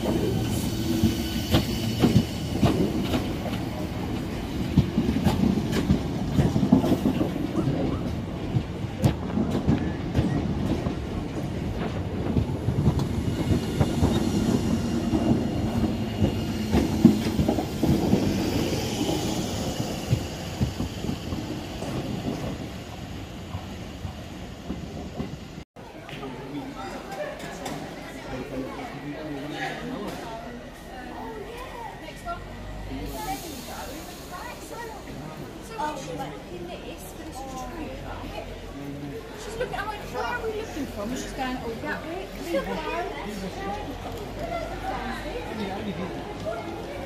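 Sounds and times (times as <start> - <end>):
train rumble: 0.0 - 25.7.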